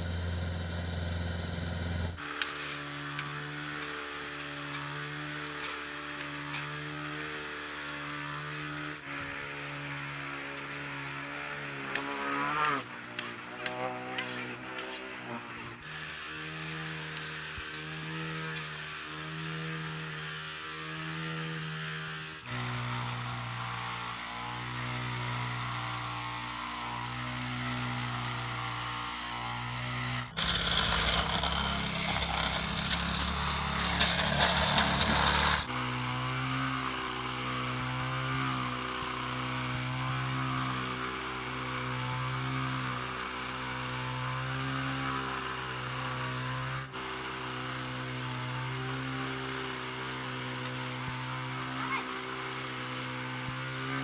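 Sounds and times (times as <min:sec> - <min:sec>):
construction machinery engine running: 0:00.0 - 0:03.3, 0:30.2 - 0:35.7.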